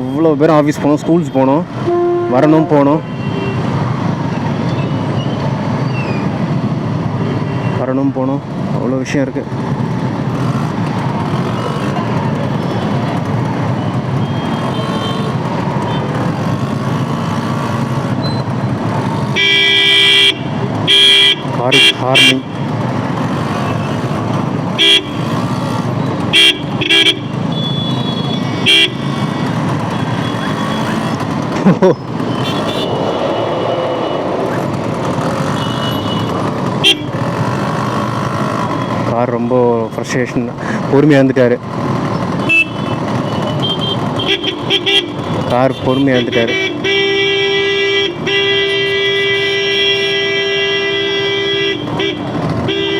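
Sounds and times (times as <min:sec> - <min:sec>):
traffic jam engines rumbling: 0:00.0 - 0:52.9
vehicle horn: 0:01.8 - 0:03.6, 0:14.2 - 0:16.1, 0:19.3 - 0:22.4, 0:24.8 - 0:25.3, 0:26.3 - 0:31.1, 0:32.4 - 0:33.3, 0:35.4 - 0:37.2, 0:42.4 - 0:52.9.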